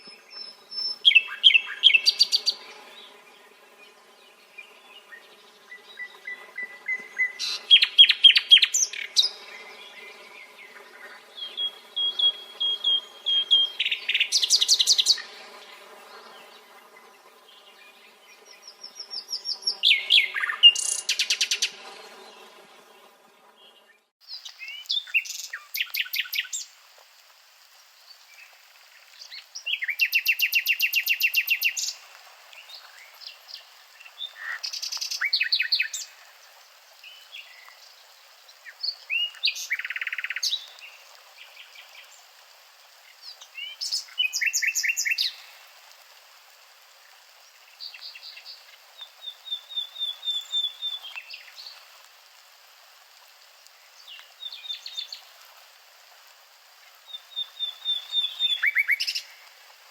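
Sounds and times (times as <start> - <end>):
nightingale singing: 0.0 - 2.6, 4.6 - 10.2, 11.4 - 15.3, 18.5 - 21.8, 23.8 - 26.7, 29.2 - 32.0, 47.8 - 51.8, 57.1 - 59.4.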